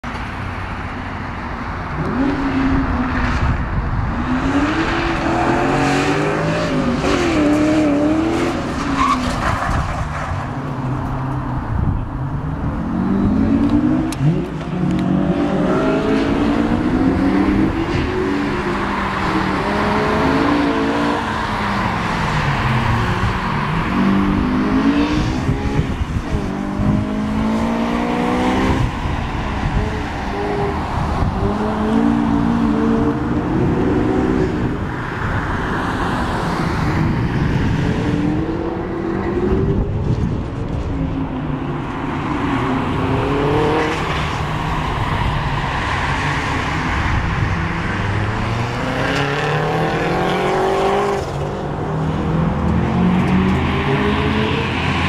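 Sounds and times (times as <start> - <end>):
car engine revving: 42.8 - 55.0.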